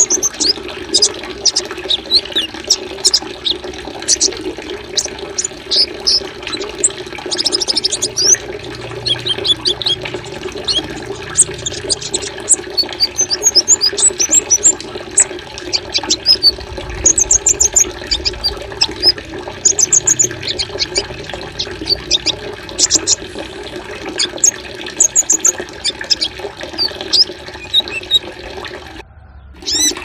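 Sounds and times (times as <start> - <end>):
songbirds chirping and trilling: 0.0 - 23.4, 24.0 - 30.0
running water: 0.0 - 29.0, 29.6 - 30.0.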